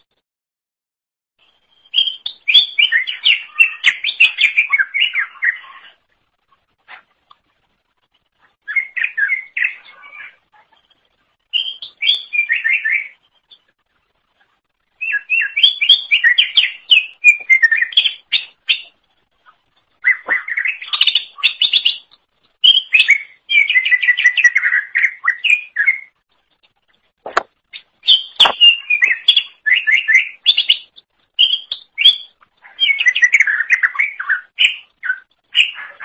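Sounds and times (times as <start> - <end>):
bird singing rapid chirps: 1.4 - 6.1, 8.6 - 13.7, 14.9 - 26.2, 27.6 - 36.0.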